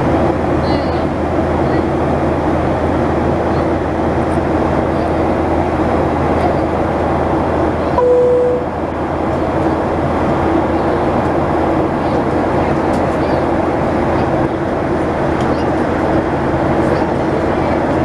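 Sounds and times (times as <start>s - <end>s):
airplane cabin engine rumble: 0.0s - 18.0s
high-then-low chime tone: 8.0s - 8.7s.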